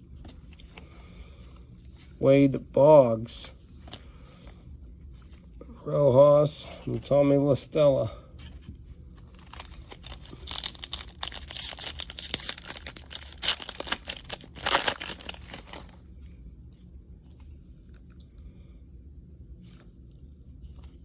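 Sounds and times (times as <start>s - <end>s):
faint handling sounds: 0.0s - 2.3s, 3.5s - 18.4s
foil wrapper tearing and crinkling: 9.3s - 16.0s.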